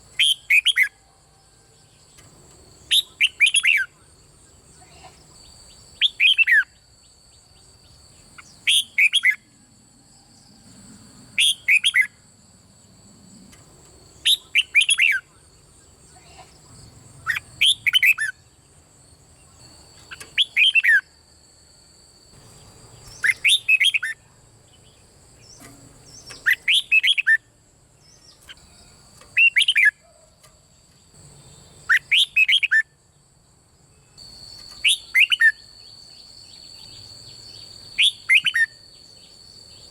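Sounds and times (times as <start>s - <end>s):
faint high-pitched whine: 0.0s - 39.9s
bird singing whistled song: 0.1s - 1.0s, 1.8s - 4.6s, 5.4s - 7.7s, 8.4s - 9.5s, 11.4s - 12.2s, 14.2s - 16.0s, 16.8s - 18.6s, 19.4s - 21.2s, 22.5s - 30.1s, 31.6s - 33.0s, 34.0s - 39.9s.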